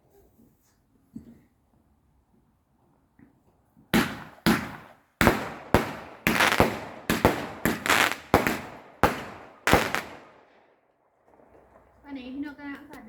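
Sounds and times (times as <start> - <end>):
fireworks banging: 3.8 - 10.6.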